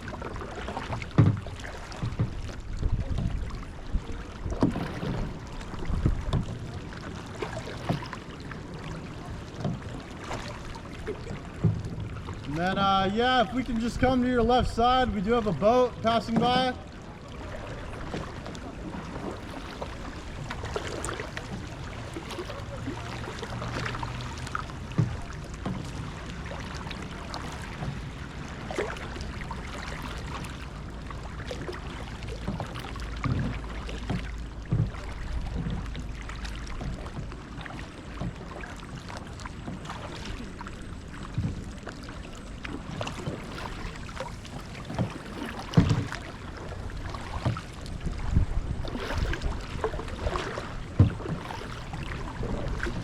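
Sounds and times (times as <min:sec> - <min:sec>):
kayak paddle splashes: 0:00.0 - 0:53.0
water lapping at hull: 0:00.0 - 0:53.0
motorboat engine drone: 0:16.7 - 0:53.0.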